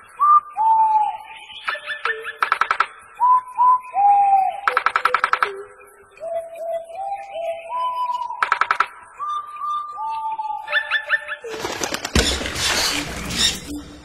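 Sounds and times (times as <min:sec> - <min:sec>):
whistled notes sliding downward: 0:03.2 - 0:04.8, 0:06.2 - 0:08.6.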